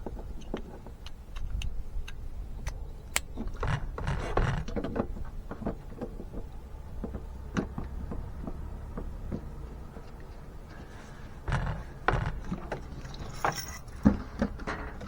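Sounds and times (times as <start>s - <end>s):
plastic clicks and rubbing: 0.0s - 5.0s.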